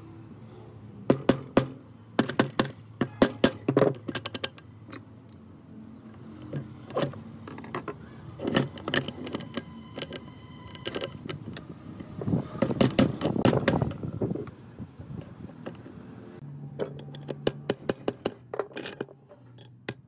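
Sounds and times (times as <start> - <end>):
metallic clinks and knocks: 1.1 - 11.7.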